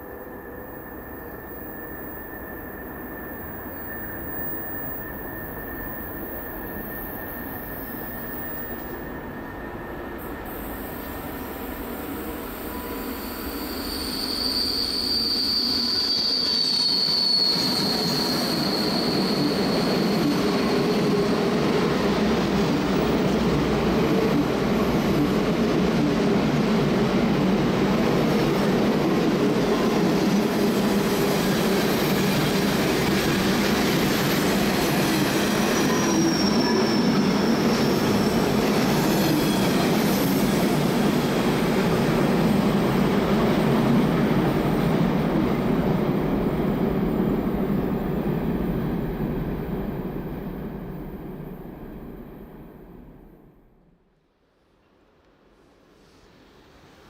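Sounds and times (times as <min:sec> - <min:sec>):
train wheels rumbling on track: 0:00.0 - 0:53.0
high wheel squeal: 0:00.3 - 0:11.4, 0:12.6 - 0:21.4, 0:31.2 - 0:41.4.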